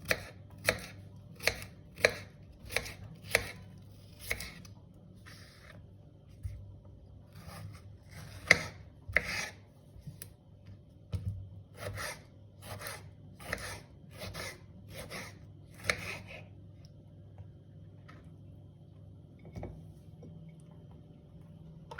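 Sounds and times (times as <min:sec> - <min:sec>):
knife cutting on cutting board: 0:00.0 - 0:05.8, 0:07.3 - 0:10.3, 0:11.8 - 0:16.4.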